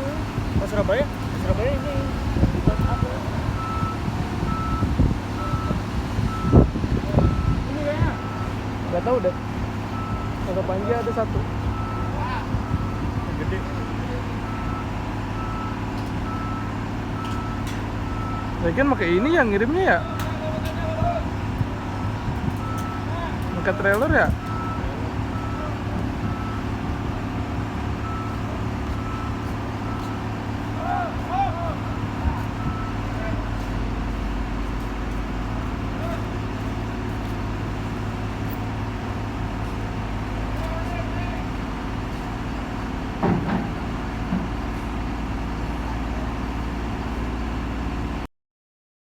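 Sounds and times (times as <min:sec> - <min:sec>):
heavy diesel engine running: 0:00.0 - 0:48.3
reversing alarm beeps: 0:01.6 - 0:13.4, 0:14.4 - 0:18.9, 0:22.6 - 0:26.8, 0:28.0 - 0:30.3, 0:31.8 - 0:33.2.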